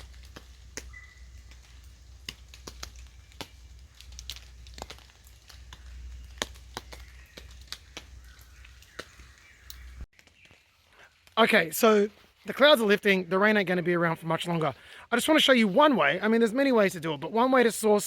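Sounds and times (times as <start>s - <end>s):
raindrops tapping on a tarp: 0.0s - 13.0s.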